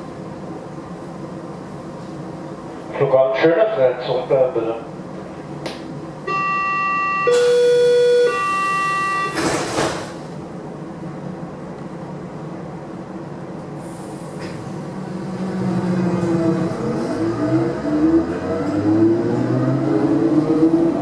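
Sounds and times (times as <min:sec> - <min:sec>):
train doors shutting: 0:05.7 - 0:10.5, 0:13.6 - 0:21.0
door closing warning tone: 0:06.3 - 0:09.9
train electric drone: 0:06.3 - 0:21.0.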